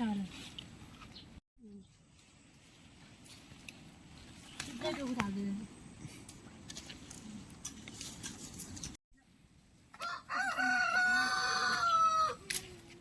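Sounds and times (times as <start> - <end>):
rooster crowing: 10.0 - 12.4.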